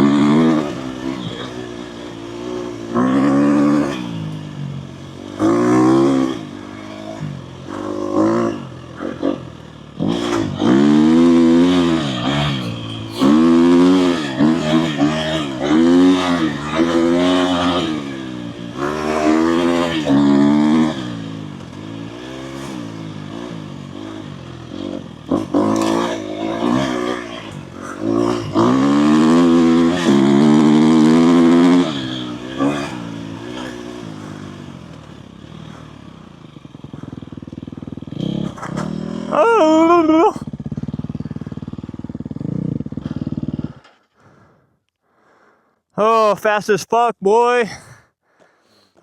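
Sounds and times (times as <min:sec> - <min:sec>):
dirt bike engine revving: 0:00.0 - 0:44.5.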